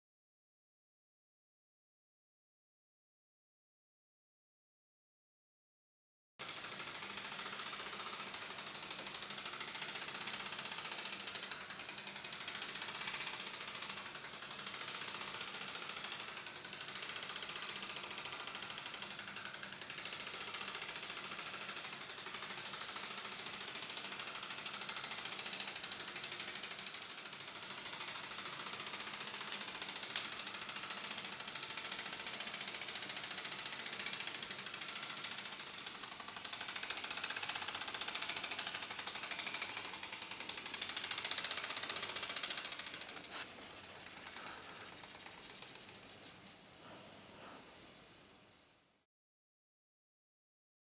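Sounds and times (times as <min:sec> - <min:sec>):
toy steam engine ticking and hissing: 0:06.4 - 0:46.7.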